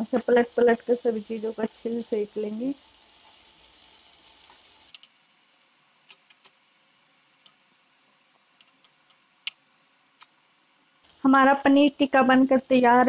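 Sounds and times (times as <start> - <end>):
food sizzling in a pan: 0.0 - 13.0
soft ticks: 7.4 - 7.6.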